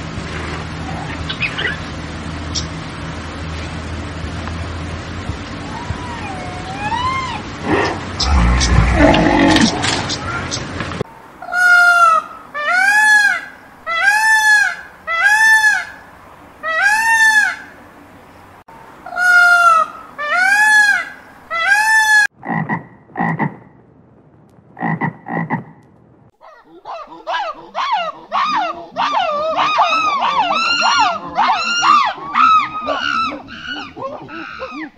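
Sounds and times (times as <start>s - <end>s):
fast wavering animal call: 5.7s - 9.8s, 26.4s - 34.9s
short arching animal calls: 26.4s - 34.9s.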